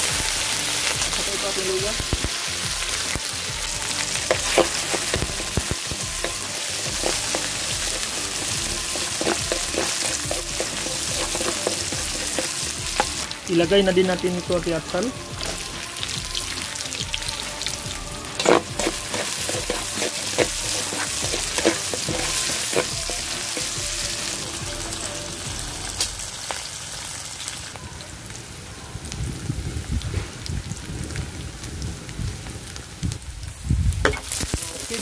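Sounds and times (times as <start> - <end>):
aromatics sizzling in oil: 0.0 - 35.0
spatula knocking and scraping pan: 6.2 - 13.2, 18.4 - 23.9.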